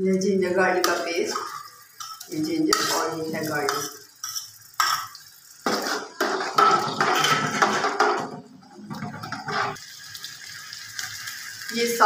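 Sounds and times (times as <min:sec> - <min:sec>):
paste sizzling in hot oil: 0:00.4 - 0:08.2, 0:09.2 - 0:12.0
steel spoon scraping a pot: 0:01.3 - 0:05.2, 0:09.1 - 0:09.8.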